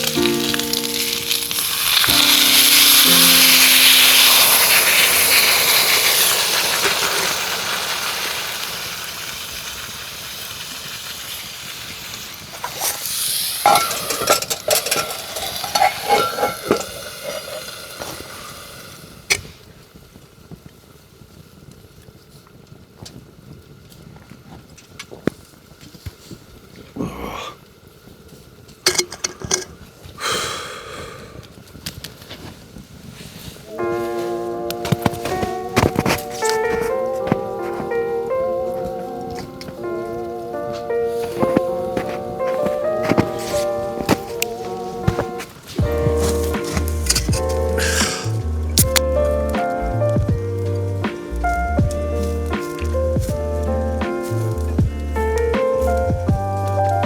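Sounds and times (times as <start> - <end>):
food sizzling in a hot pan: 0.0 - 19.3
metal utensils scraping a pan: 12.8 - 18.6.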